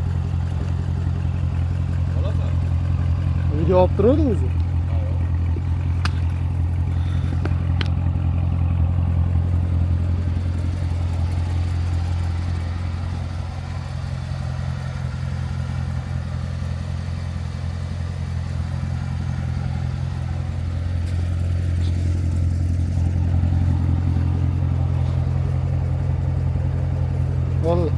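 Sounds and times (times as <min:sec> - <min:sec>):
car engine idling: 0:00.0 - 0:27.9.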